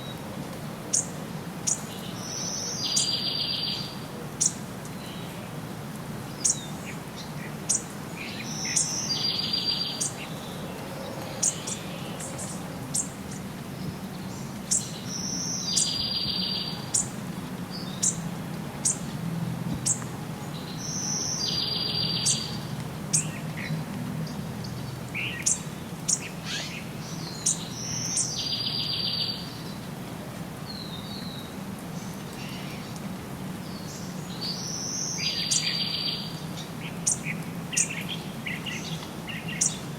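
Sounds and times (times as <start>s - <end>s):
birds chirping: 0.9s - 5.3s, 6.3s - 19.1s, 19.8s - 29.9s, 33.6s - 39.9s.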